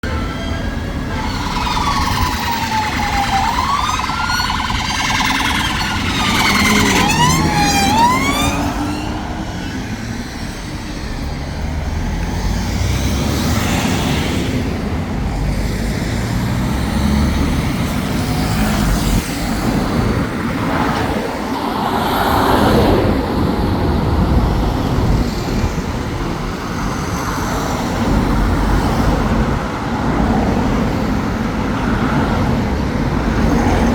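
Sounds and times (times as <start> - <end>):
passing road traffic: 0.0 - 33.9
police sirens wailing: 0.1 - 10.2.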